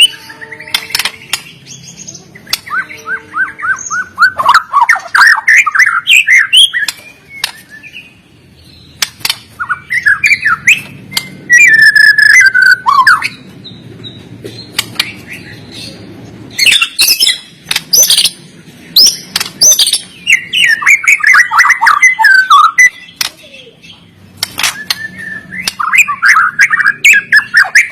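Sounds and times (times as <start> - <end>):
bird singing whistled notes: 0.0 - 8.9, 9.6 - 13.8, 19.0 - 23.7, 24.7 - 27.9.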